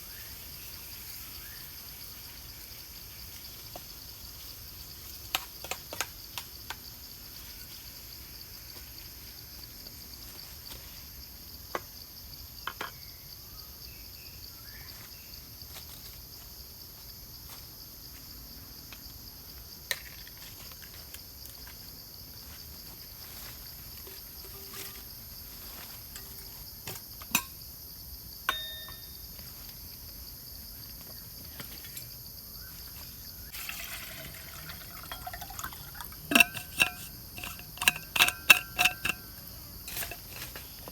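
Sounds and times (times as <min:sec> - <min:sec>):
steady high-pitched hiss: 0:00.0 - 0:40.9
liquid pouring: 0:33.5 - 0:39.2.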